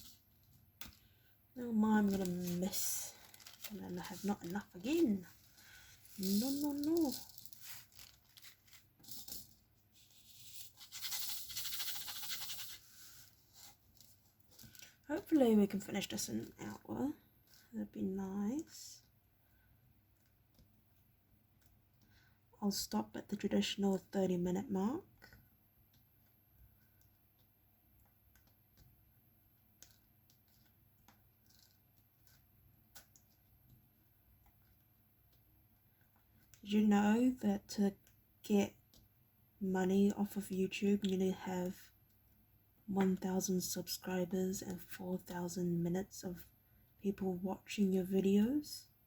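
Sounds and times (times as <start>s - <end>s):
plastic beads rattling in a tray: 2.1s - 12.8s.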